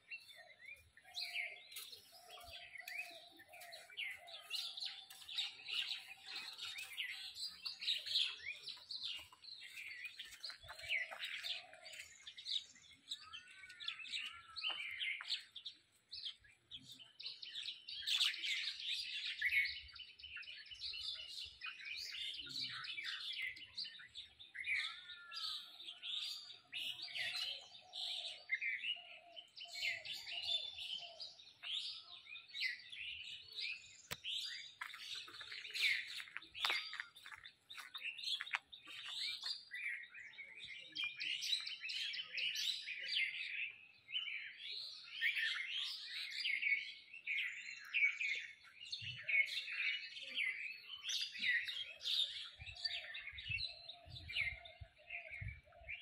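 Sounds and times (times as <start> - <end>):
small birds chirping chorus: 0.0 - 56.0.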